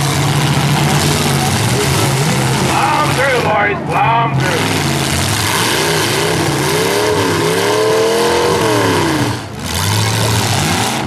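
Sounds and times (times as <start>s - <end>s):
steady noisy wash: 0.0s - 8.8s
car engines running: 0.0s - 11.0s
engine revving: 0.0s - 11.0s.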